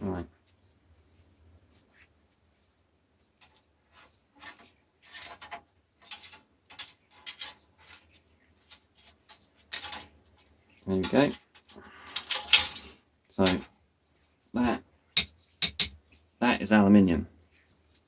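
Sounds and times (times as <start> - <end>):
metal and plastic parts scraping: 3.4 - 14.4.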